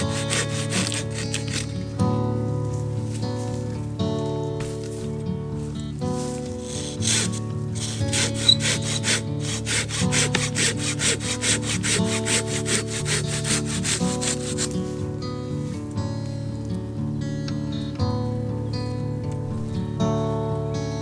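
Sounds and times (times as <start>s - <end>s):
hand saw cutting wood: 0.0s - 3.8s, 4.5s - 15.8s
background music: 0.0s - 21.0s.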